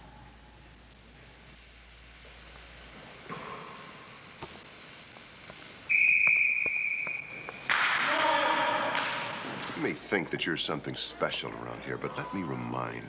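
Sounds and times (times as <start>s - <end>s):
high whistle blast: 5.9s - 7.5s.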